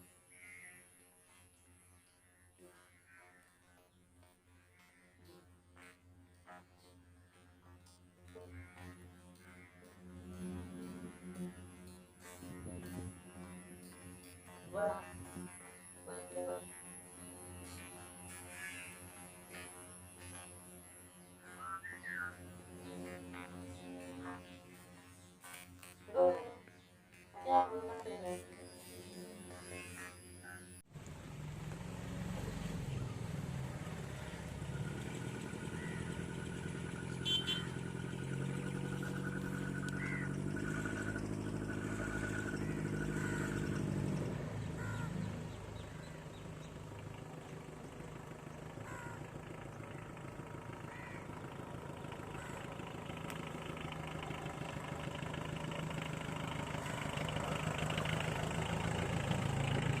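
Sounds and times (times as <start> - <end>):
car diesel engine running: 30.9 - 60.0
road noise: 30.9 - 60.0.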